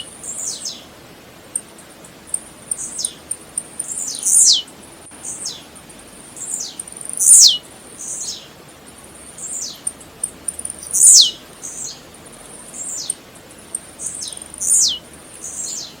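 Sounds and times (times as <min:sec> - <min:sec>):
bird singing high sharp notes: 0:03.9 - 0:04.7, 0:06.5 - 0:07.6, 0:10.8 - 0:12.0.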